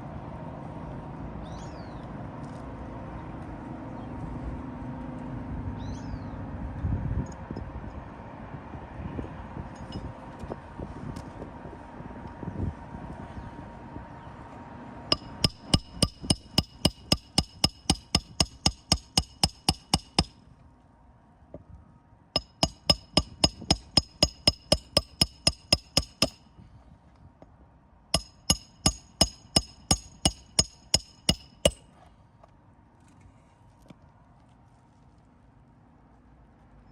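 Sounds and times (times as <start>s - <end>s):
hammer striking metal: 15.1s - 20.4s, 22.4s - 26.5s, 28.2s - 31.9s.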